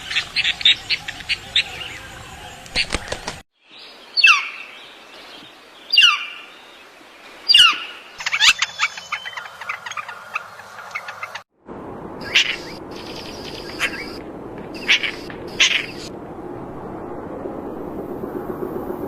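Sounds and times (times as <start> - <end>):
sharply falling bird calls: 2.7 - 3.4, 12.2 - 16.1
bird chirps and twitters: 7.5 - 11.4, 12.2 - 16.1.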